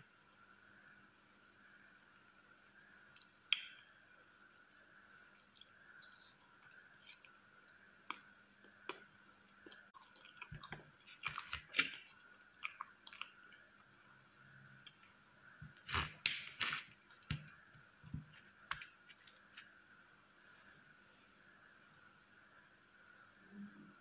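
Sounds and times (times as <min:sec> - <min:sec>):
chewing soft cake: 0:05.3 - 0:19.7.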